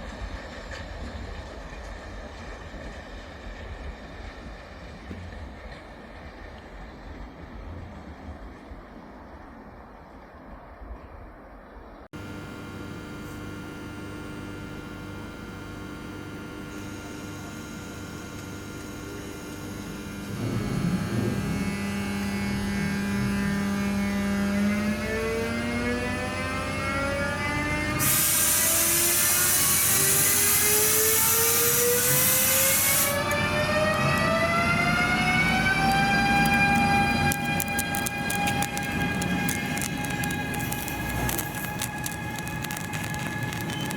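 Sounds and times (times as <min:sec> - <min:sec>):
locomotive whine rising: 0:12.2 - 0:43.9
train humming: 0:12.2 - 0:43.9
high hiss: 0:28.0 - 0:33.4.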